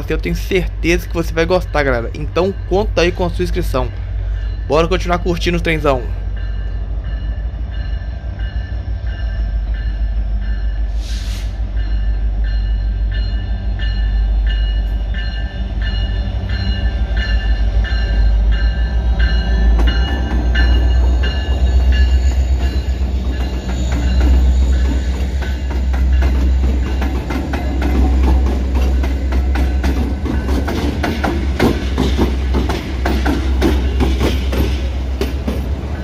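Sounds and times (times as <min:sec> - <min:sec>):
freight train passing: 0:00.0 - 0:36.0
short hiss: 0:10.9 - 0:11.6
warning bell ringing: 0:11.8 - 0:30.8.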